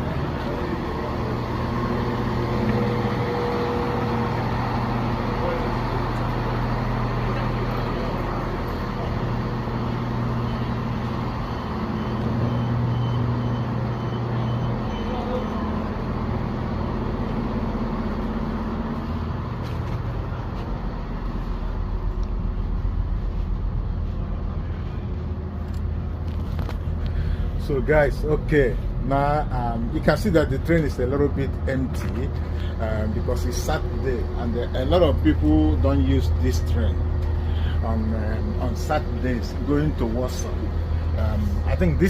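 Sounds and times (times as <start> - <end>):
diesel train engine hum: 0.0 - 42.0
train rumble: 0.0 - 42.0.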